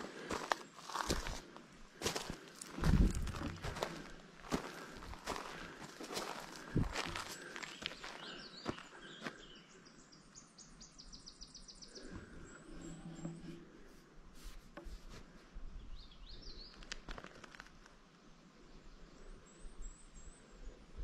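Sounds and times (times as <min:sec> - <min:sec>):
soft footfalls on trail: 0:00.0 - 0:09.4
songbird singing: 0:02.0 - 0:13.7, 0:15.8 - 0:17.0, 0:18.6 - 0:21.0.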